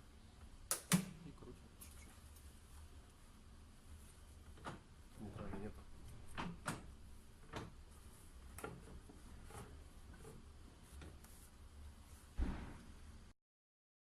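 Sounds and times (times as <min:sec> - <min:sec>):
loud thump: 0:12.4 - 0:12.9.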